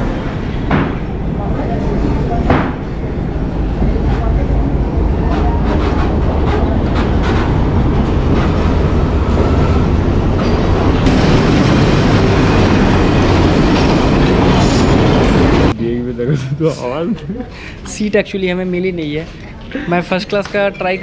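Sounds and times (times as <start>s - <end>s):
train wheels rumbling on rails: 0.0s - 15.8s.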